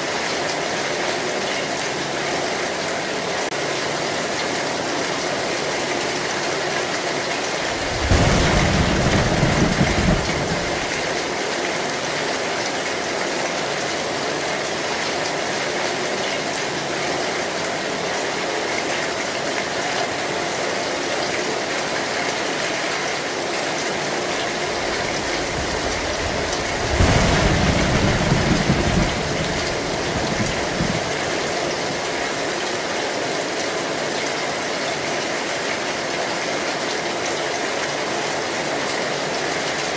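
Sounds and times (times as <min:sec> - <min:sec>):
heavy rain on a metal roof: 0:00.0 - 0:39.9
thunder rumbling: 0:07.6 - 0:11.2, 0:24.4 - 0:32.2.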